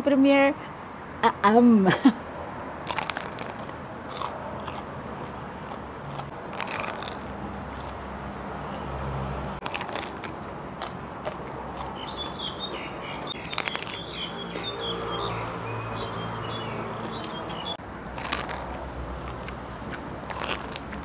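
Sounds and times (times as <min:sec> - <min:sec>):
crunchy biting and chewing: 0:02.8 - 0:15.2, 0:16.0 - 0:21.0
birds chirping: 0:11.7 - 0:17.8.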